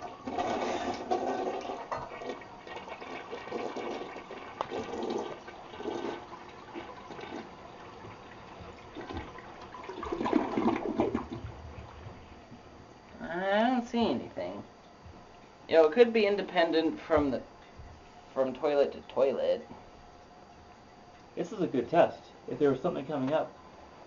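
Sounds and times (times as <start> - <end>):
toilet flushing: 0.0 - 12.0
water gurgling: 0.0 - 12.1.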